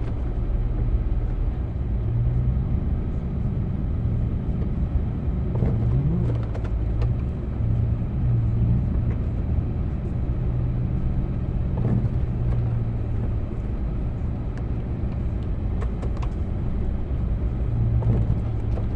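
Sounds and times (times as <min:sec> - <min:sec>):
vehicle engine humming: 0:00.0 - 0:18.9
small knocks and clicks: 0:14.6 - 0:16.5.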